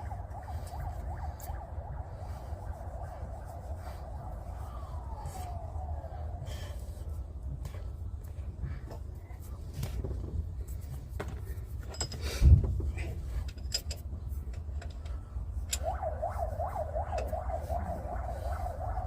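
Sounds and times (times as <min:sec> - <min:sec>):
warbling siren-like tone: 0:00.0 - 0:07.8, 0:15.5 - 0:19.0
steady low rumble: 0:00.0 - 0:19.0.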